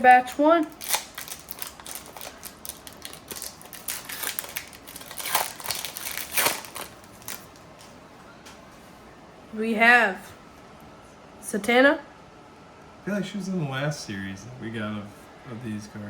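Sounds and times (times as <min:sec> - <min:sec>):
card pack wrapper tearing and crinkling: 0:00.7 - 0:07.6.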